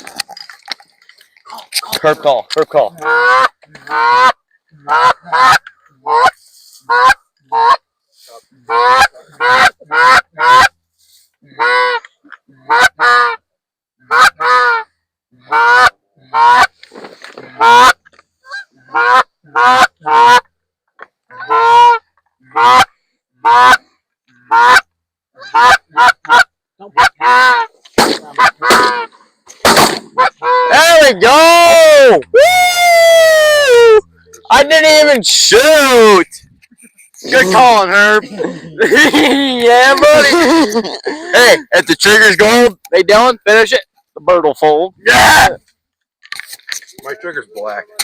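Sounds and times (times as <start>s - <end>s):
goose call honks and clucks: 1.5s - 10.8s, 11.4s - 32.4s.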